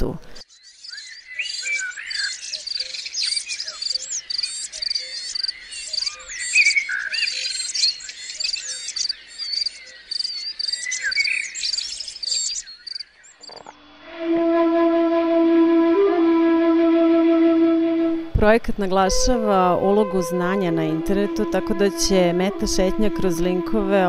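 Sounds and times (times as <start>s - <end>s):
chorus of birds singing: 0.2s - 13.8s
sustained flute note: 13.9s - 24.0s.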